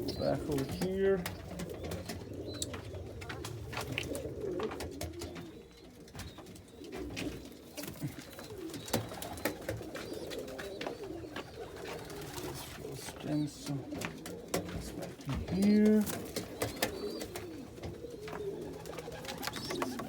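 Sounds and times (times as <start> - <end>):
pigeons cooing: 0.0 - 20.0.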